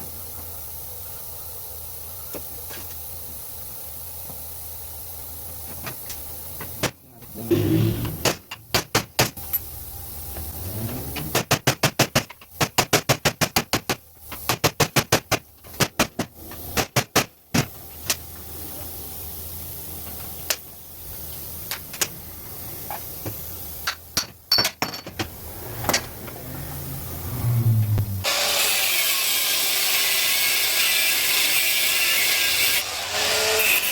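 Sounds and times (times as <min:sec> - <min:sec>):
hand tool rapid clicks: 0:11.2 - 0:17.3.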